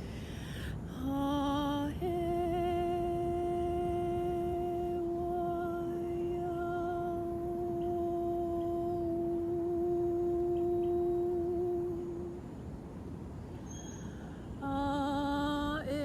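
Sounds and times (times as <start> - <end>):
woman humming: 0.9 - 12.4.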